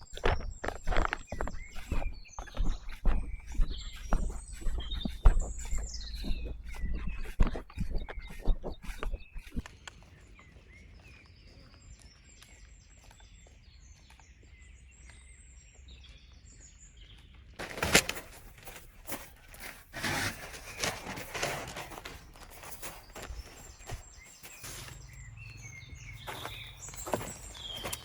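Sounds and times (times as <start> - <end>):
rustling and crunching: 0.0 - 10.2, 17.6 - 28.0
small birds chirping: 0.0 - 28.0.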